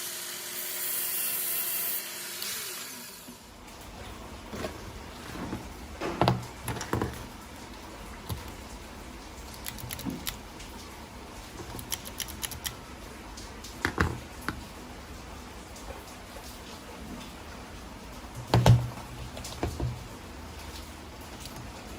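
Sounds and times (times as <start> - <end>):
small parts and tools clicking: 9.5 - 10.4, 11.6 - 12.8.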